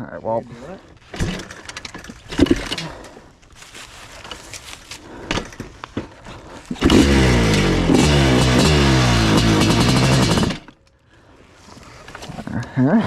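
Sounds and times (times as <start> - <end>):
knocks and clanks: 1.1 - 3.0
dirt bike engine running: 5.2 - 10.7.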